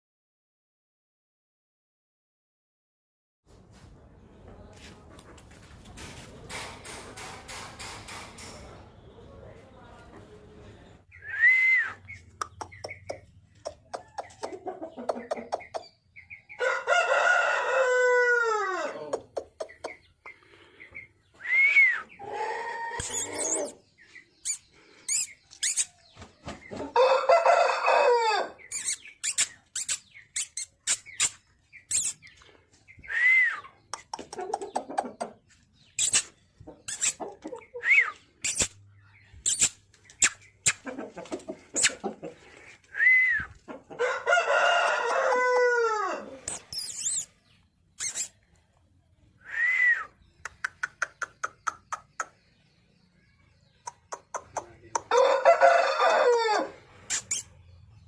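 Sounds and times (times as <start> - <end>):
rooster crowing: 16.6 - 19.1, 27.0 - 28.6, 44.0 - 46.5, 55.1 - 56.8.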